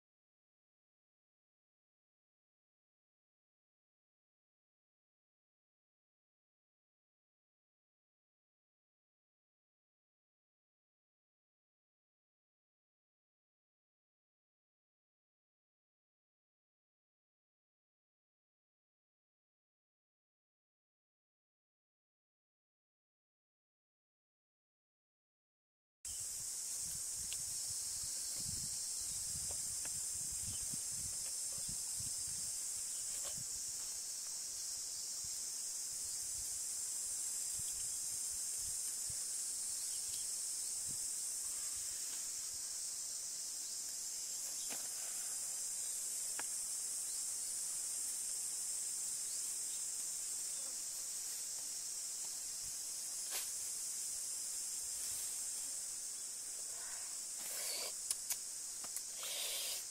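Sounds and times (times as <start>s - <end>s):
high-pitched insect chorus: 26.1s - 59.9s.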